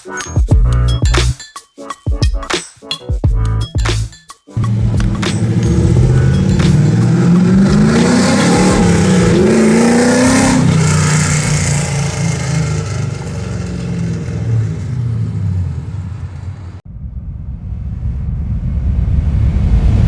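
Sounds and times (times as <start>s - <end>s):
car engine accelerating: 4.6s - 20.0s.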